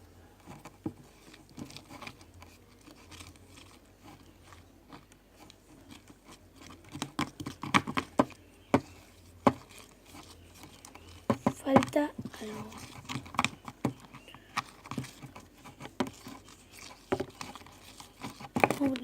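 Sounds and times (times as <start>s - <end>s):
small hard objects clicking in bowl: 6.6s - 19.0s.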